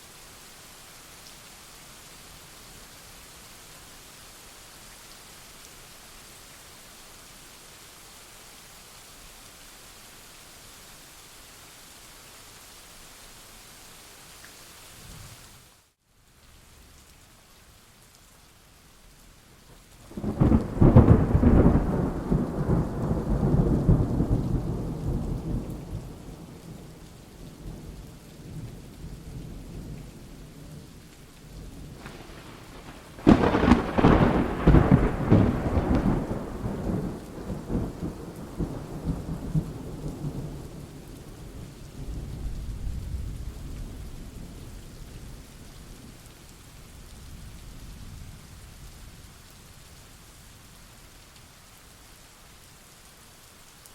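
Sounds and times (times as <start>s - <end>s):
steady rain: 0.0s - 53.9s
thunder rolling: 31.9s - 40.4s.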